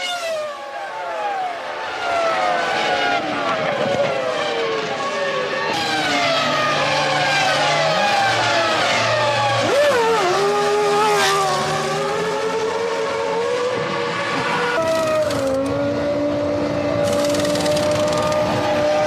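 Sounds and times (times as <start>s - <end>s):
racing car engines at high revs: 0.0s - 19.0s.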